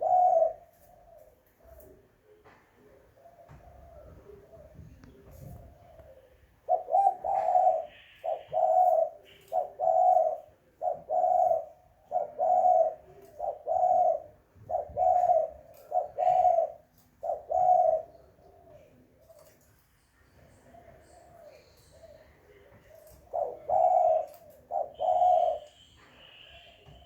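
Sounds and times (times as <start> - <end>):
dove cooing: 0.0 - 19.7, 20.4 - 27.0
faint high bird chirps: 24.3 - 27.0.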